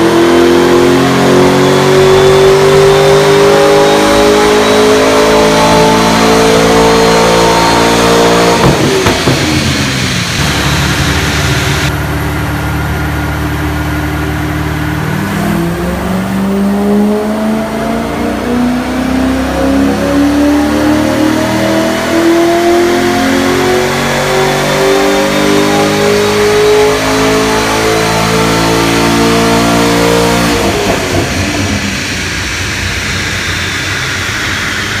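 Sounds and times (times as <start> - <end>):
car engine on dyno: 0.0 - 35.0.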